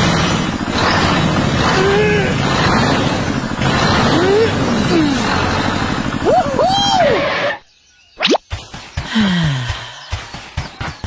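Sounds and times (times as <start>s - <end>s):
tractor engine running: 0.0s - 7.5s.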